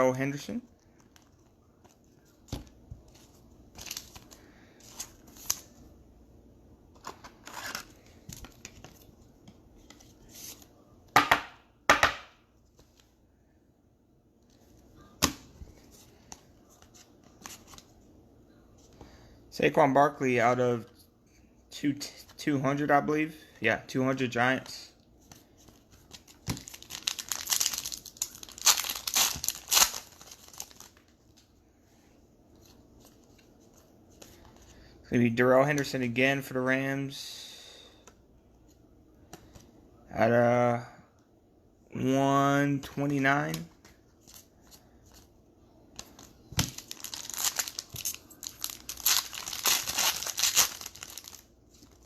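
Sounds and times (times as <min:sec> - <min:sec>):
foil wrapper tearing and crinkling: 0:26.5 - 0:30.9, 0:46.8 - 0:52.0.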